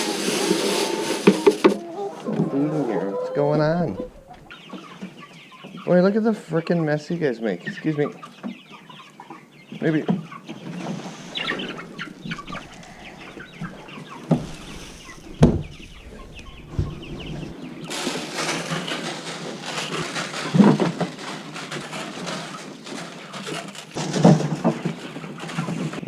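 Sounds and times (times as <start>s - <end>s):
hens clucking: 0.2s - 26.0s
steady rustle: 3.5s - 4.6s, 10.5s - 26.0s
dull knocks: 11.3s - 17.5s.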